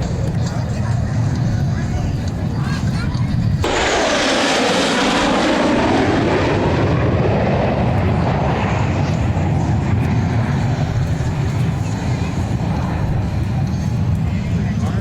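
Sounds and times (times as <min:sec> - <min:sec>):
aircraft flying past: 0:00.0 - 0:15.0.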